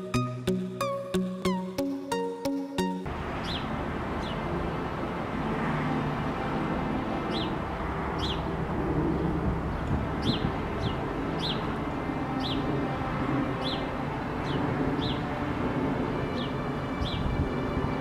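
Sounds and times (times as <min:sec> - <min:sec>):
bird chirping: 0:00.0 - 0:04.5, 0:08.2 - 0:08.5, 0:09.7 - 0:12.7.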